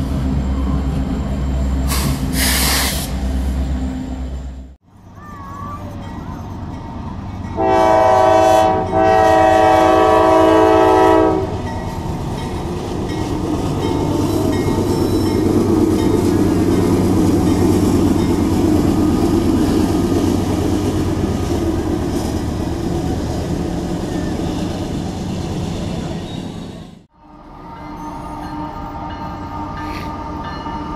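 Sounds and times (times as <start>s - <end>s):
train wheels rumbling on rail: 0.0s - 27.1s, 27.8s - 30.9s
locomotive air horn blasts: 7.6s - 11.7s.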